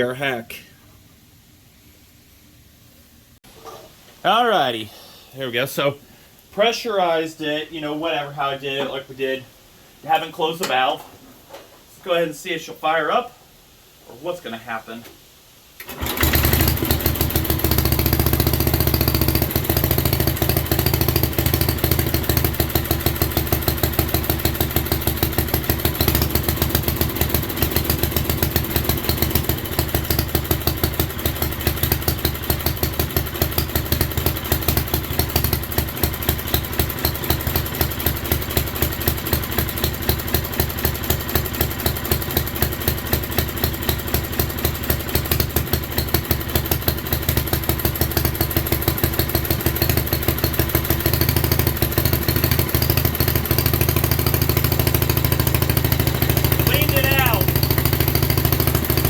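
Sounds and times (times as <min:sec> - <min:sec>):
small engine running steadily: 0:16.0 - 0:59.0.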